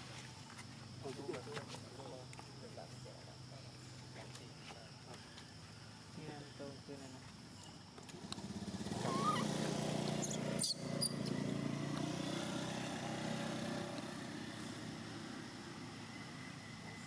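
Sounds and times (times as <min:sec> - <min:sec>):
small engine running: 0:08.1 - 0:17.0
short high squeak: 0:09.0 - 0:09.5, 0:10.2 - 0:11.3.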